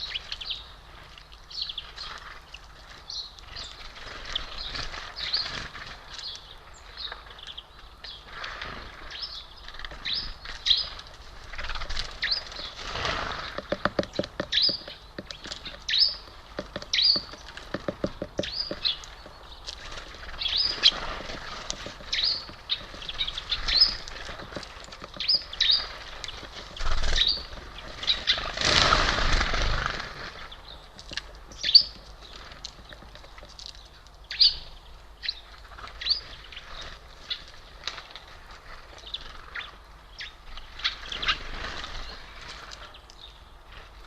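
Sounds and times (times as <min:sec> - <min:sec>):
small birds chirping: 0:00.0 - 0:44.0
wings fluttering: 0:01.7 - 0:06.5, 0:08.2 - 0:34.7, 0:40.5 - 0:42.9.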